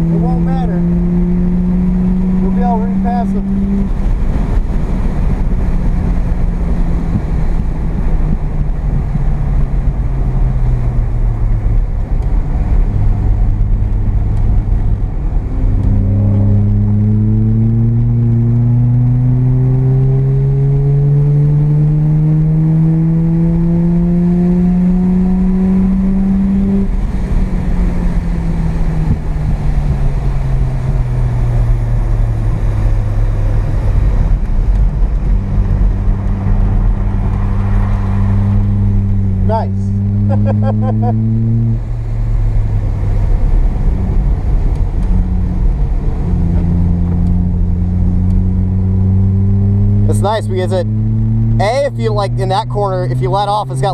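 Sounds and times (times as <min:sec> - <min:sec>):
rotary engine revving: 0:00.0 - 0:07.8, 0:14.2 - 0:53.9
road noise: 0:00.0 - 0:53.9.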